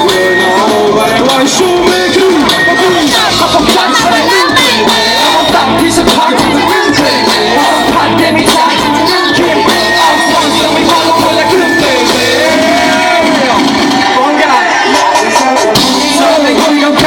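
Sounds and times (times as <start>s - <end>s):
live band music: 0.0s - 17.0s
people singing: 0.0s - 17.0s.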